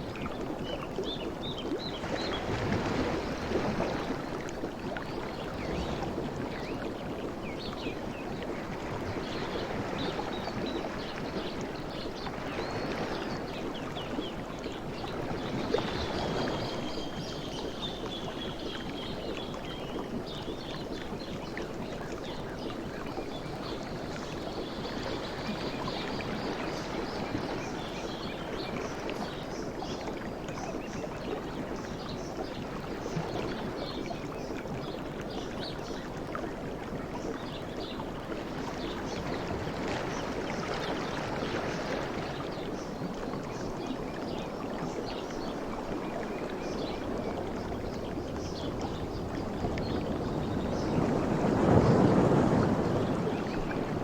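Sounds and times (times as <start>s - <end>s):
sea waves lapping: 45.7s - 54.0s.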